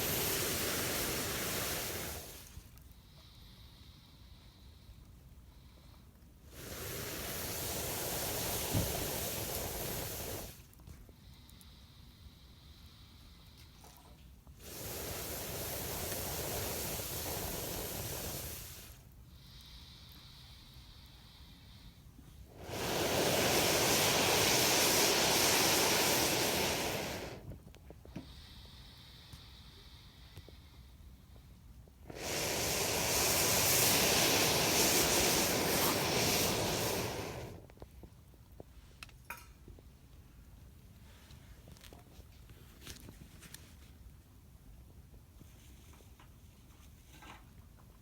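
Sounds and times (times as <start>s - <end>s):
campfire burning: 0.0s - 2.6s, 6.5s - 10.6s, 14.6s - 19.0s, 22.5s - 27.7s, 32.0s - 38.1s
wood fire crackling: 0.0s - 2.6s, 6.5s - 10.6s, 14.6s - 19.0s, 22.5s - 27.8s, 32.1s - 38.2s
rushing hiss: 0.0s - 2.7s, 6.5s - 10.7s, 14.6s - 20.5s, 21.6s - 27.6s, 32.1s - 37.8s.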